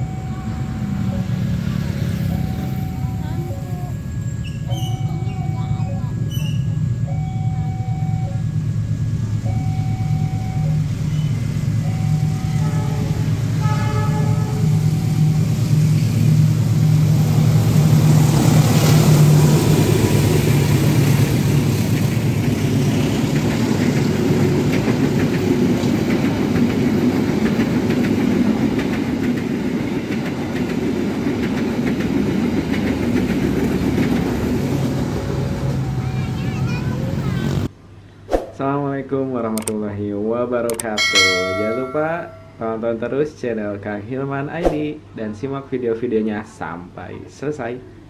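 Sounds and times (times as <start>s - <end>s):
locomotive engine hum: 0.0s - 37.7s
train wheels rumbling on rails: 8.6s - 37.7s.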